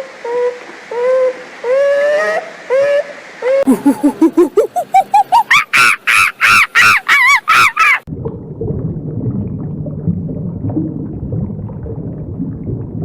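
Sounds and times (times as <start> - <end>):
high arching animal calls: 0.9 - 8.1.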